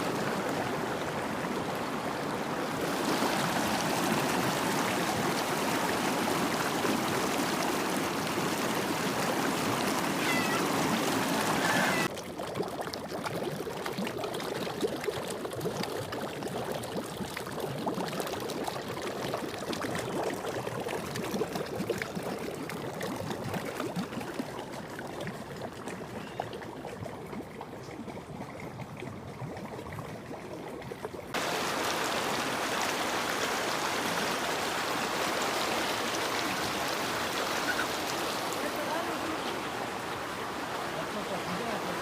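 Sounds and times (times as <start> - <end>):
floodwater rushing: 0.0 - 12.8, 31.3 - 42.0.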